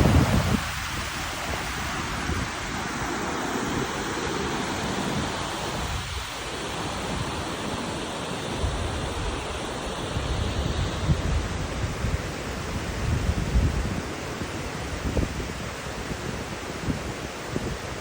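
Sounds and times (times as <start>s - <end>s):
wind buffeting microphone: 0.0s - 7.6s, 8.6s - 18.0s.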